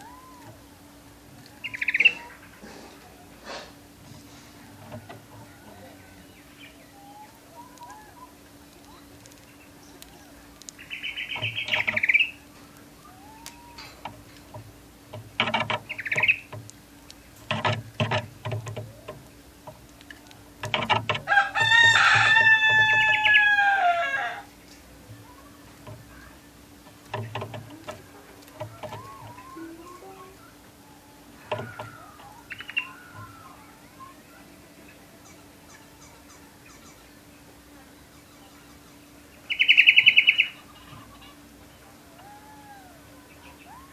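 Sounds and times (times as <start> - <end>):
canary trilling and chirping: 1.4 - 2.6, 8.9 - 14.5, 15.2 - 19.2, 25.2 - 37.1
rooster crowing: 4.6 - 8.2, 13.0 - 14.2, 21.1 - 24.5, 28.6 - 33.8, 42.0 - 43.9
sharp knocks: 14.0 - 16.7, 17.4 - 19.8, 20.6 - 23.1.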